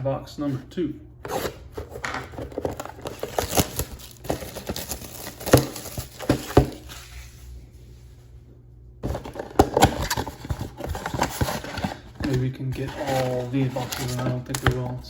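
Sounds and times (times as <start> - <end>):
cardboard box rustling: 1.3 - 7.2, 9.0 - 15.0.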